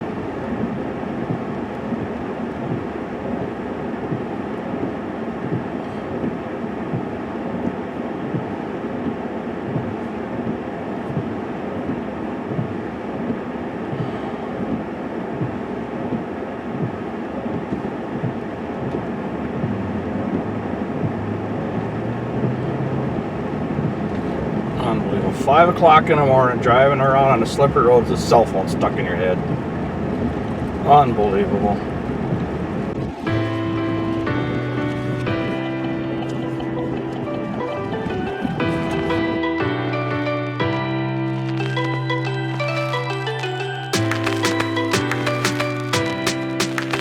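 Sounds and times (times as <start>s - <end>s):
vehicle engine and road noise: 18.9s - 25.3s.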